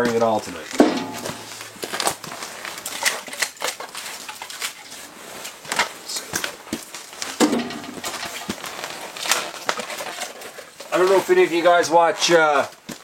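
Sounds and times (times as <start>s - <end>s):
firewood clicking and knocking: 0.0s - 11.2s
loud clank: 0.8s - 1.6s, 7.4s - 8.0s.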